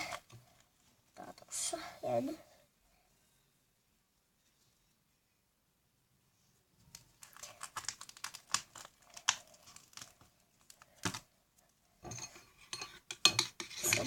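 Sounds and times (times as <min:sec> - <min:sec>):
plastic containers clicking and crinkling: 0:06.9 - 0:11.8.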